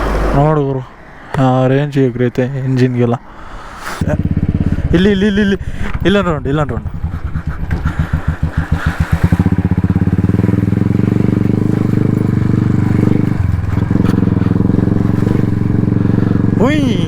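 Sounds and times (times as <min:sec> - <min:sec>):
motorcycle engine thumping: 0:04.0 - 0:04.9, 0:05.7 - 0:17.0.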